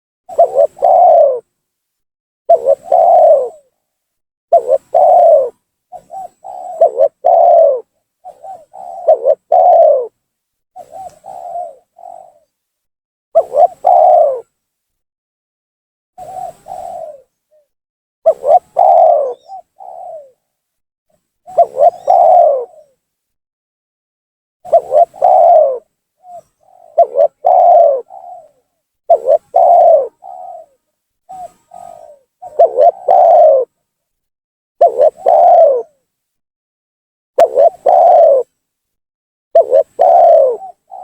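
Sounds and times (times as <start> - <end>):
dove cooing: 0.3 - 1.5, 2.5 - 3.8, 4.5 - 10.2, 10.8 - 12.6, 13.4 - 14.6, 16.2 - 17.7, 18.3 - 20.4, 21.5 - 23.0, 24.6 - 33.8, 34.8 - 36.0, 37.4 - 38.5, 39.6 - 41.0.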